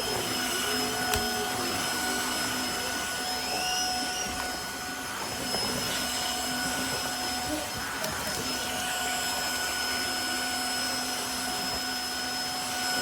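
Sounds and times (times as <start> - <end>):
vacuum mop motor whine: 0.0 - 13.0.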